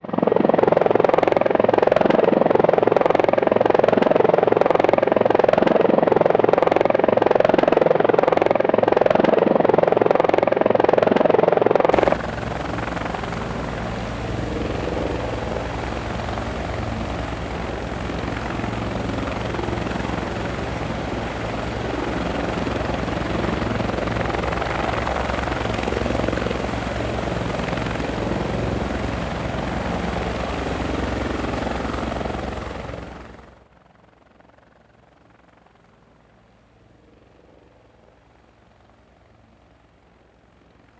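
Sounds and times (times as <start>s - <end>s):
helicopter rotor and engine: 0.0s - 40.9s
high-pitched whine: 12.0s - 30.2s.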